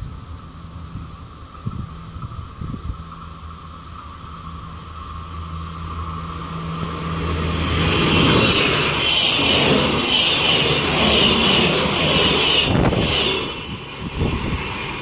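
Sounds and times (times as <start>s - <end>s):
diesel train passing: 0.0s - 15.0s
train wheels on rails: 0.0s - 15.0s.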